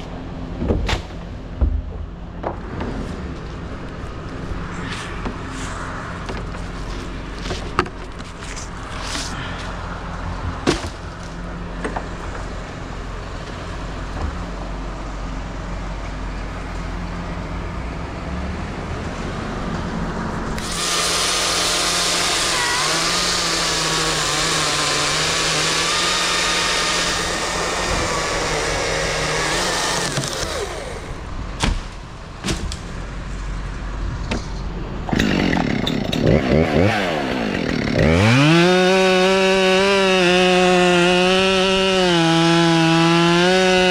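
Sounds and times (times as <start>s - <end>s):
chainsaw cutting: 20.5s - 31.3s, 35.1s - 43.9s.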